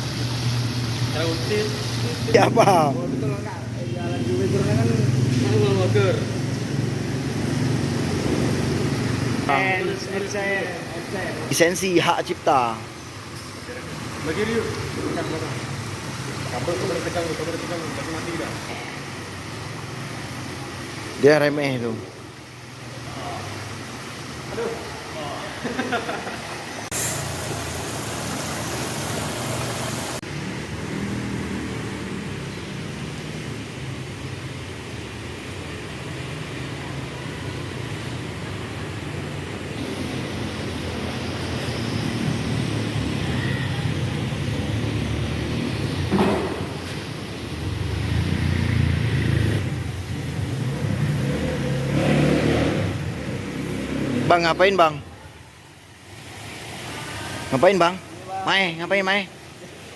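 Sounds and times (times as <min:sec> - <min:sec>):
engine rumbling: 0:00.0 - 0:54.7
loud even hiss: 0:22.4 - 0:30.2.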